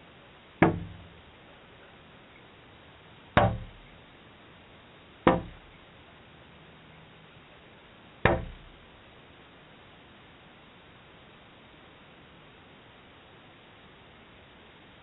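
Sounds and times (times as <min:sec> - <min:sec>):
sharp knocks: 0:00.6 - 0:01.2, 0:03.4 - 0:03.9, 0:05.3 - 0:05.8, 0:08.2 - 0:08.8.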